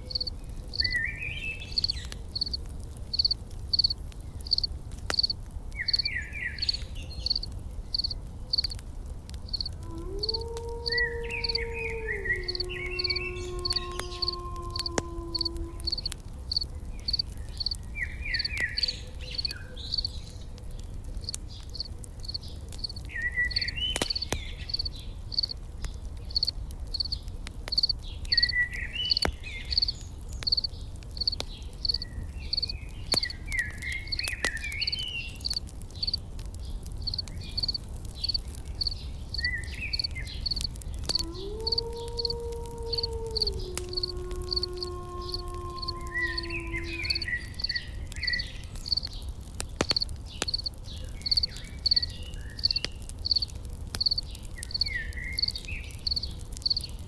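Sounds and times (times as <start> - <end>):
campfire crackling: 0.0 - 57.0
insects chirping: 1.8 - 6.0, 7.3 - 8.8, 9.5 - 17.8, 19.4 - 20.1, 21.8 - 25.6, 26.3 - 28.5, 29.1 - 33.3, 35.4 - 36.2, 37.0 - 47.9, 49.8 - 56.8.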